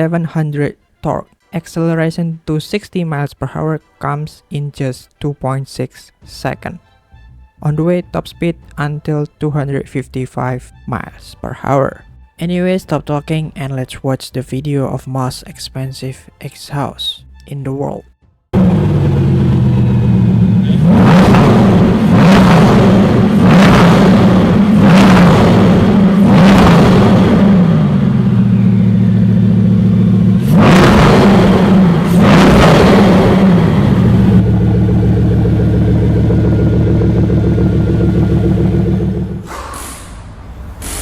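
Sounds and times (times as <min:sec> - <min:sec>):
car engine revving and idling: 0:18.6 - 0:39.9.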